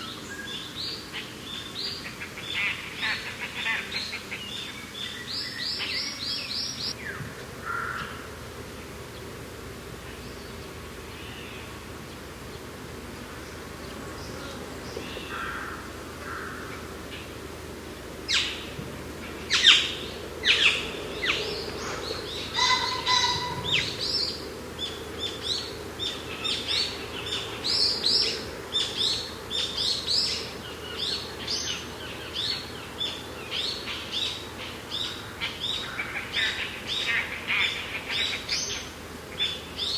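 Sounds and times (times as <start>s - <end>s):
birds chirping and calling: 0.0s - 8.2s, 18.3s - 39.9s
low wind rush: 6.2s - 37.9s.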